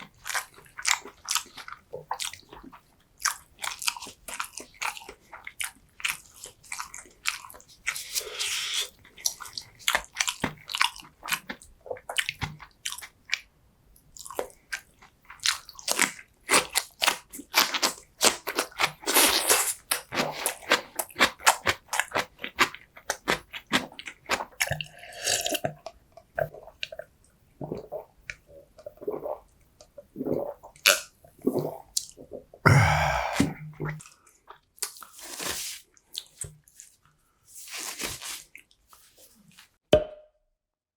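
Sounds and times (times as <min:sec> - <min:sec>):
chewing and biting food: 0:00.1 - 0:08.2, 0:09.0 - 0:13.5, 0:14.2 - 0:25.7.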